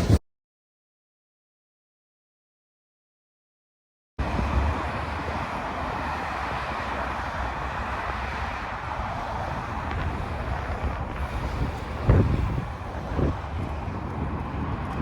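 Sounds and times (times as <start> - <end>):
vehicle rumble: 4.2 - 15.0.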